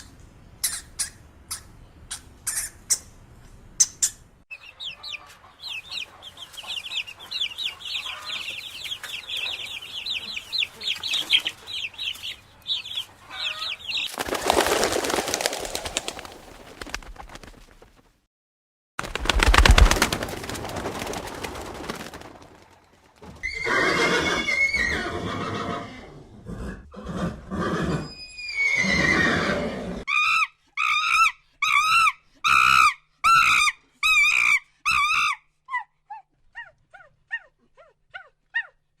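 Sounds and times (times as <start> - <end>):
short evenly spaced calls: 3.8 - 16.4
horse neighing: 23.4 - 30.0.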